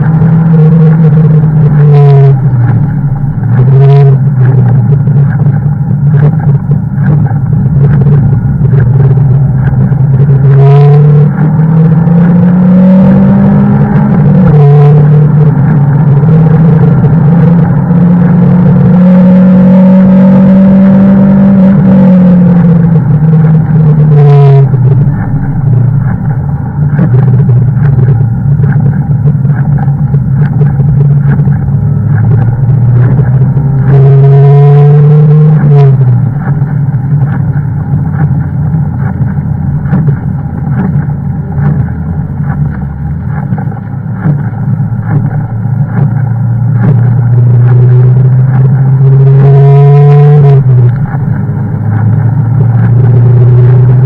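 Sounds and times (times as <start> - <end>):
car engine from inside cabin: 0.0 - 54.0.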